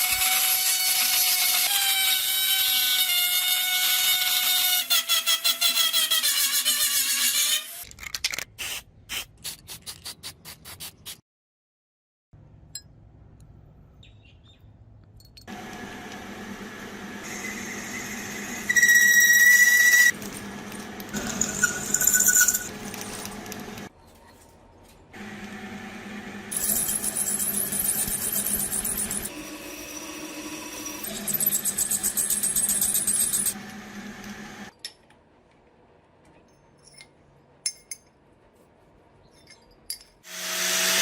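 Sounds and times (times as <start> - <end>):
power tool squealing on steel: 17.2 - 20.2, 21.1 - 23.0, 26.5 - 33.6.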